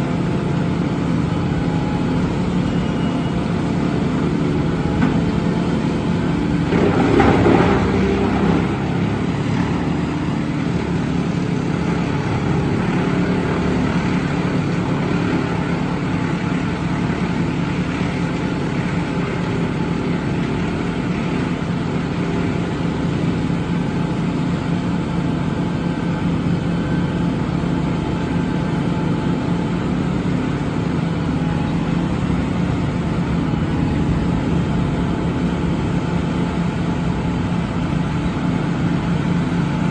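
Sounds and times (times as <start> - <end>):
truck diesel engine idling: 18.4 - 39.9.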